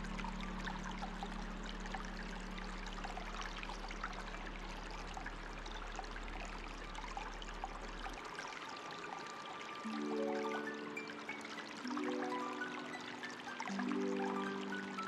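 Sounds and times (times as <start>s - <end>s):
low steady hum: 0.0s - 8.2s
water drips and trickles: 0.0s - 15.0s.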